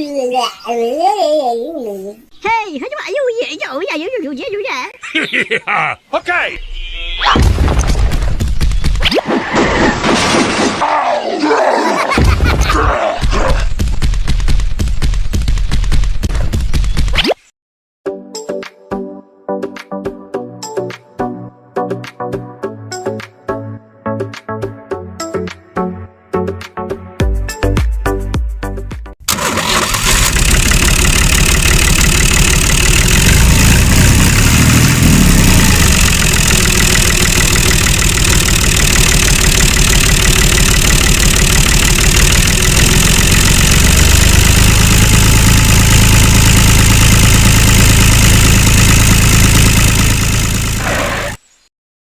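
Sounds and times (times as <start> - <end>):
engine running with low pulsing: 29.4 - 51.0.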